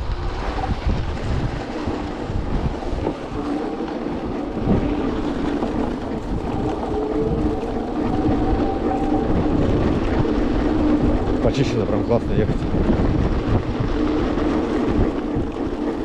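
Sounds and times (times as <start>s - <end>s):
electric motor whine: 0.0s - 11.4s
wind buffeting microphone: 0.0s - 16.0s.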